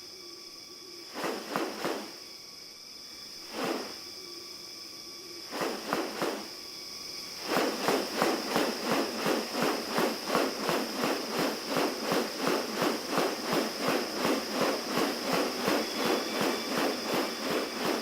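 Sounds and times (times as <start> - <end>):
insects droning: 0.0 - 18.0
harsh rustling bursts: 1.2 - 2.1, 3.5 - 4.0, 5.5 - 6.5, 7.4 - 18.0.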